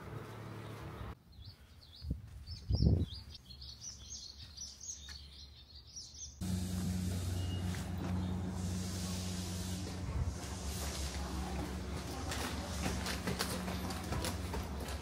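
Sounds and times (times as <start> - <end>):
small birds chirping: 0.2 - 6.4
steady low hum: 6.4 - 15.0.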